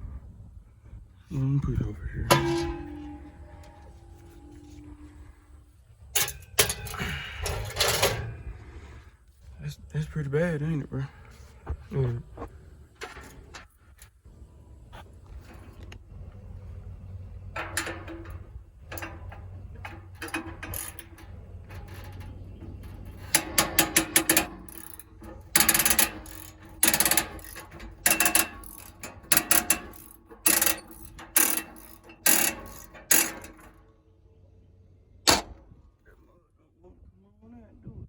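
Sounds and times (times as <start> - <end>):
low hum: 0.0 - 28.8
wrench ratcheting clicks: 23.1 - 33.7.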